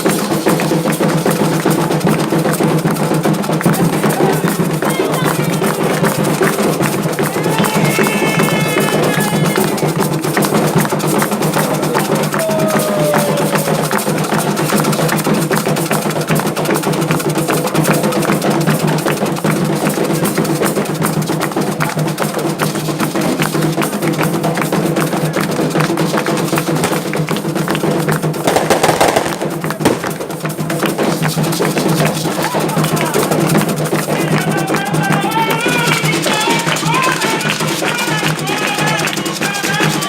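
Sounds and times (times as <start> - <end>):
hand drums fast rhythm: 0.0 - 40.0.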